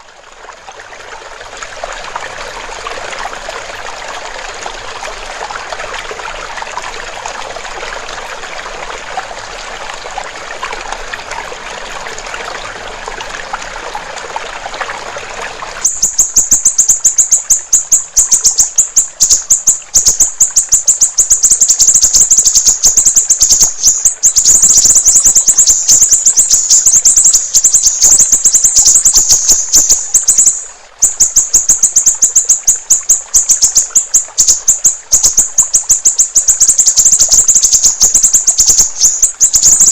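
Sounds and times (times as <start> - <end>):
water trickling: 0.0 - 39.9
bird song fast high chirps: 15.8 - 39.9.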